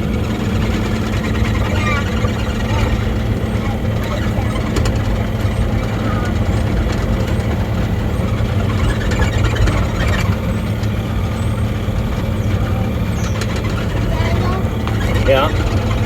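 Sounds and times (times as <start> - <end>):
excavator engine running: 0.0 - 16.0.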